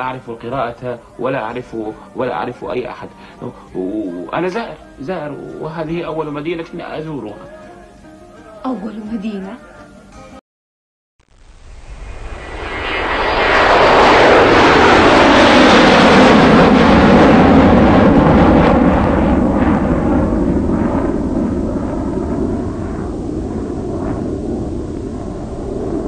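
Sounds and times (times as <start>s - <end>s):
loud rushing roar: 11.5s - 26.0s.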